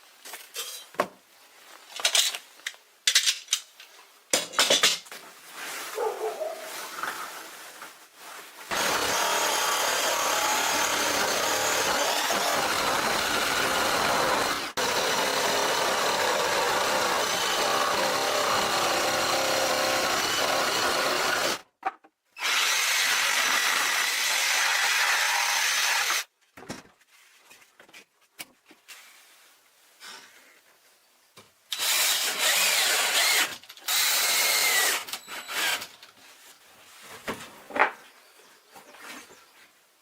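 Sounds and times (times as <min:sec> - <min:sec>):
power tool cutting wood: 0:08.7 - 0:21.6, 0:22.4 - 0:26.3, 0:31.7 - 0:35.9.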